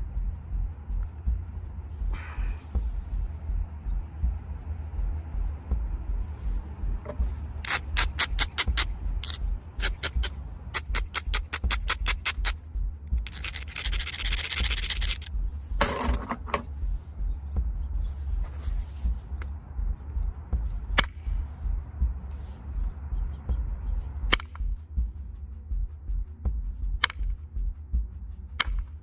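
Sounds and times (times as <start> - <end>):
stone edge scraping: 7.0 - 12.5
stone knapping clicks: 7.6 - 12.6, 13.2 - 15.3, 21.0 - 21.2, 24.3 - 24.6, 27.0 - 27.4, 28.6 - 29.0.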